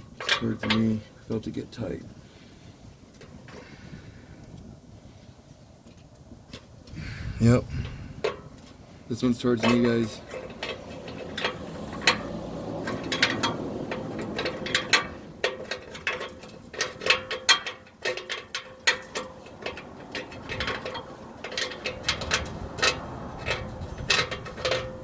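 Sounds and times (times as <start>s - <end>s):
light metallic clinks: 9.5s - 25.0s.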